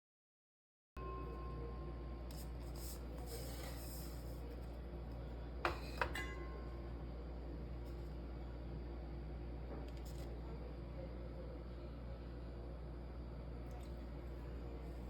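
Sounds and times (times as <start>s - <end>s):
steady low hum: 1.0s - 15.0s
kitchenware clinking: 5.7s - 6.6s.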